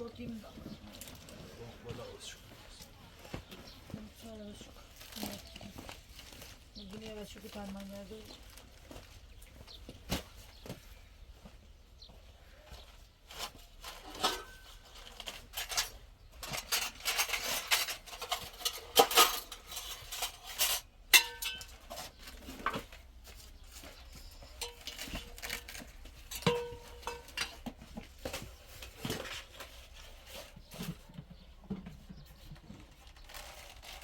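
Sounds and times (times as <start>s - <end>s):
metal objects clattering: 13.3s - 34.0s.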